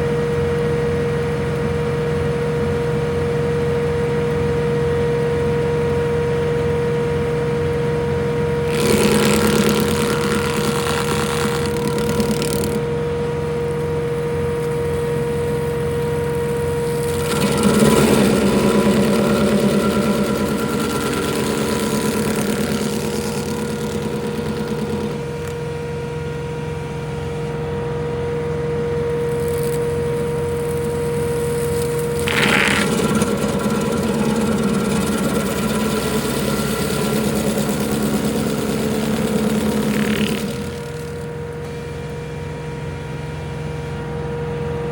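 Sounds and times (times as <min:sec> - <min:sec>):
stump grinder grinding wood: 0:08.6 - 0:25.8, 0:29.1 - 0:42.1
tractor diesel engine running: 0:08.7 - 0:25.8, 0:29.2 - 0:42.0.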